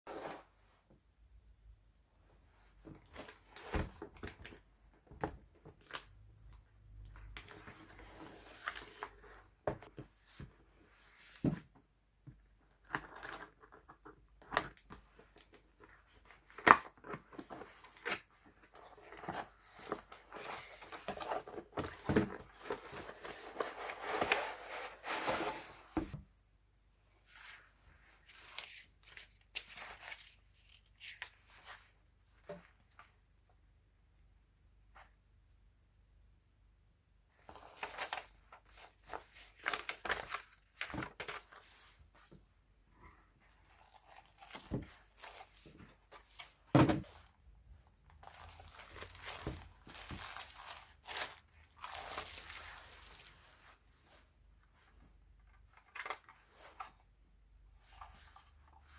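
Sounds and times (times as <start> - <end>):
packaging rustling and tearing: 48.1 - 53.4.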